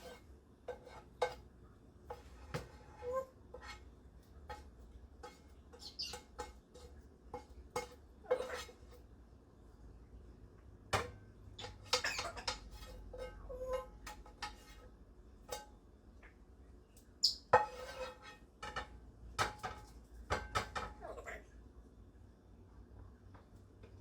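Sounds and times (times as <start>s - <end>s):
utensils clattering on pans: 0.0s - 1.5s, 4.4s - 9.0s, 11.0s - 15.8s, 17.6s - 21.3s.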